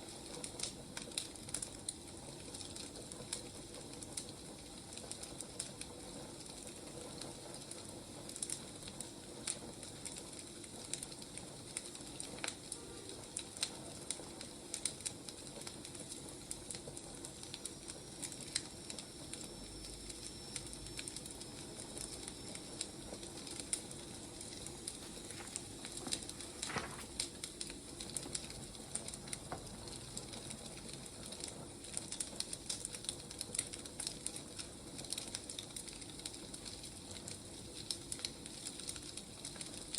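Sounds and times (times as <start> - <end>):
firewood crackling and popping: 0.0 - 39.9
steady low hiss: 16.4 - 34.6.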